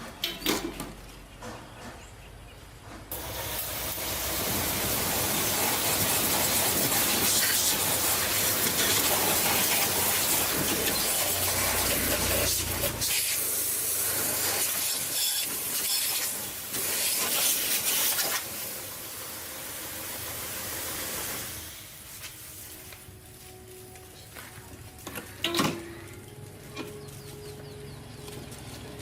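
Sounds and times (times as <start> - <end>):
air spray hissing: 3.2 - 18.8.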